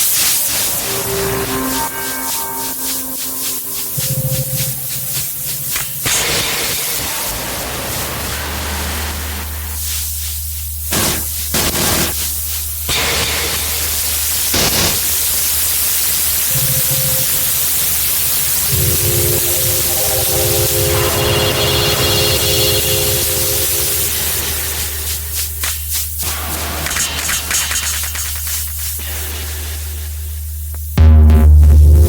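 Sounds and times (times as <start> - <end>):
steady tones: 0.0 - 6.5, 18.5 - 25.7
static hiss: 0.0 - 31.0
low steady drone: 0.5 - 6.3, 18.5 - 25.6.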